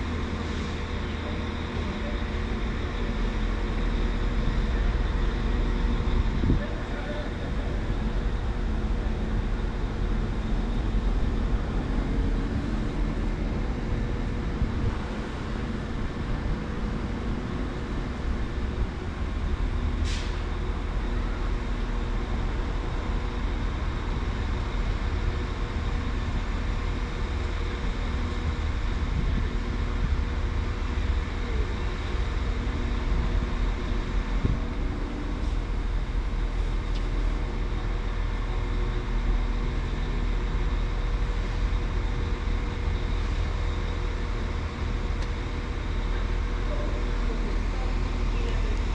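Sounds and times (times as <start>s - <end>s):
train engine rumble and hum: 0.0s - 48.9s
brief high hiss: 20.0s - 20.4s.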